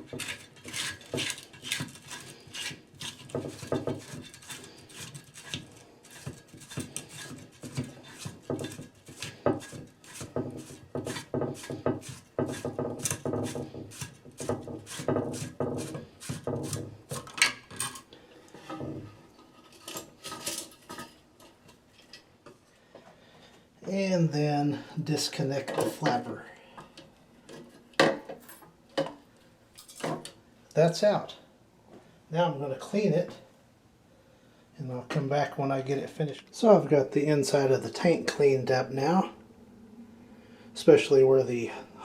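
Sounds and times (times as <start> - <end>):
hands scraping plastic fittings: 0.0 - 21.8.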